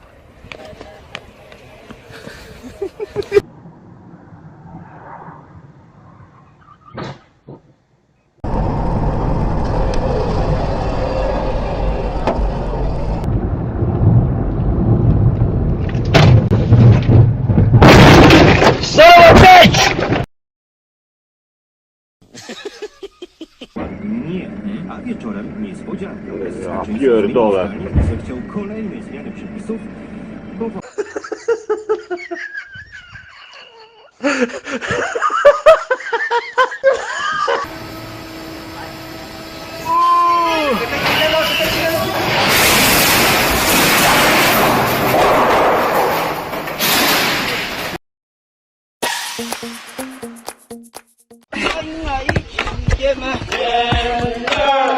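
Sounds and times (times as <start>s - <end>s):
road noise: 0.0s - 17.7s, 22.5s - 30.8s, 37.0s - 48.0s
vehicle engine rumble: 0.0s - 17.9s, 23.3s - 30.8s, 37.6s - 42.3s
people laughing: 2.1s - 3.4s, 22.3s - 23.8s, 30.8s - 37.7s.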